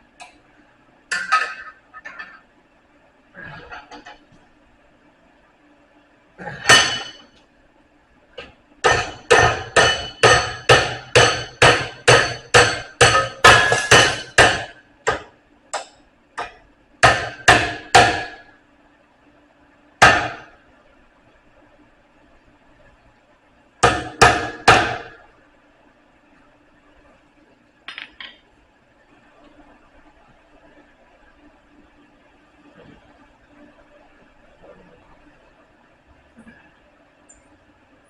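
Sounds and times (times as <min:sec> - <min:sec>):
hammer striking steel bar: 0:08.8 - 0:18.5, 0:20.0 - 0:20.5, 0:23.8 - 0:25.2.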